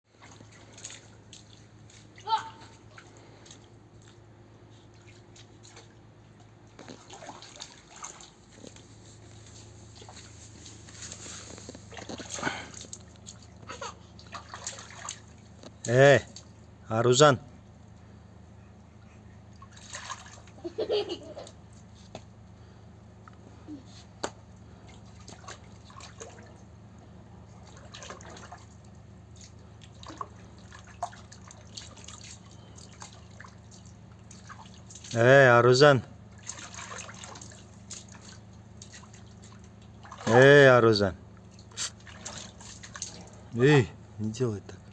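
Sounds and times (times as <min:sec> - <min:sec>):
water splashing and dribbling: 0:00.1 - 0:16.9, 0:19.1 - 0:20.7, 0:24.0 - 0:44.9
low steady hum: 0:00.1 - 0:44.9
child vocal sounds: 0:02.2 - 0:02.8
rainwater dripping and splashing: 0:06.8 - 0:16.7.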